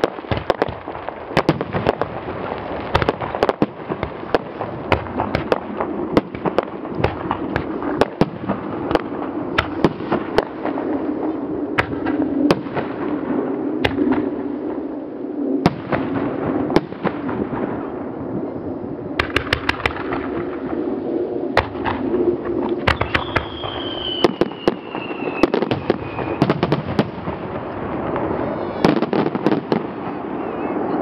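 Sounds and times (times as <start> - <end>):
fireworks bangs crackling: 0.0 - 14.4, 19.2 - 21.0, 21.6 - 30.9
descending firework whistle: 19.2 - 31.0.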